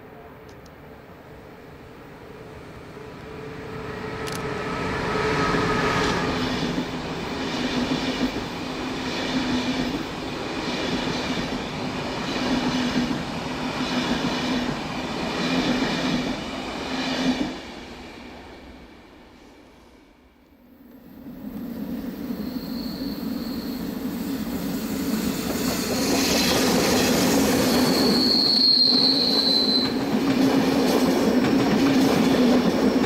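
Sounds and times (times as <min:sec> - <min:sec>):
train wheels rumbling: 0:21.4 - 0:33.0.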